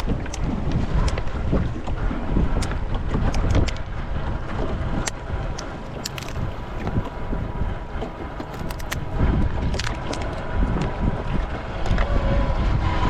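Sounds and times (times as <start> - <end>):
wind buffeting microphone: 0.0 - 13.0
sharp irregular clicks: 5.0 - 6.5, 8.4 - 9.1.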